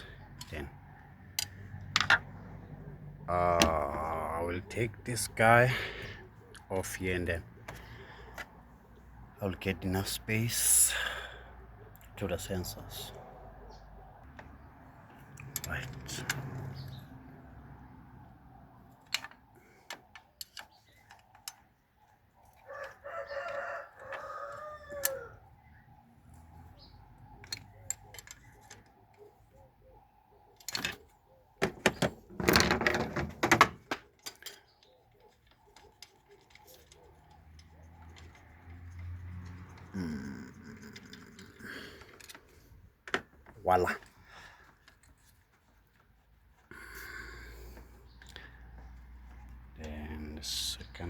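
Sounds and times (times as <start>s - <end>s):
rooster crowing: 22.6s - 25.4s.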